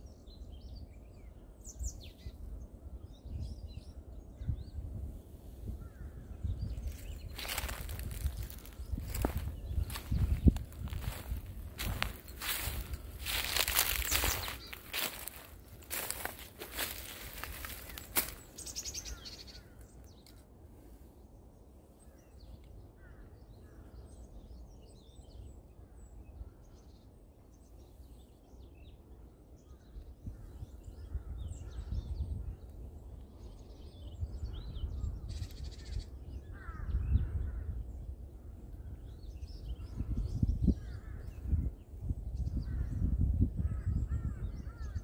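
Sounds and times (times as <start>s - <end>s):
birds calling: 0.0s - 45.0s
crow-like caws: 35.7s - 37.8s, 43.6s - 45.0s.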